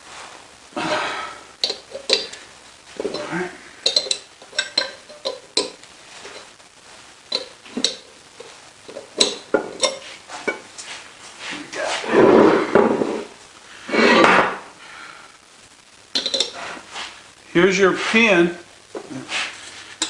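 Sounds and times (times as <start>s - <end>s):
metal parts and tools clinking: 3.0s - 6.5s, 7.3s - 10.6s, 16.2s - 16.6s
metal scraping: 7.3s - 14.6s.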